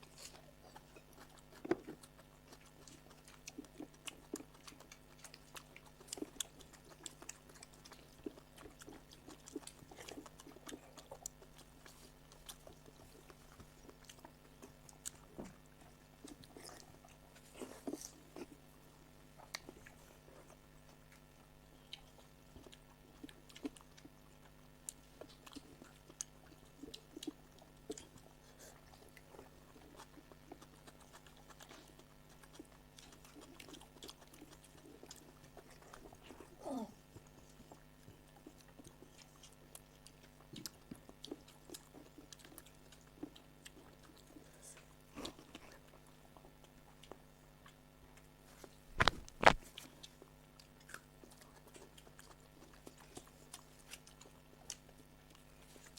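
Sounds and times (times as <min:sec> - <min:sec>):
faint steady hum: 0:00.0 - 0:55.9
people chewing and smacking: 0:00.0 - 0:55.9
crunch: 0:48.6 - 0:55.9.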